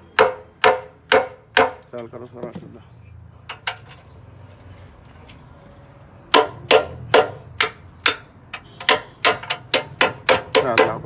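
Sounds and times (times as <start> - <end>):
hammer striking metal: 0.1 - 1.8, 6.3 - 11.0.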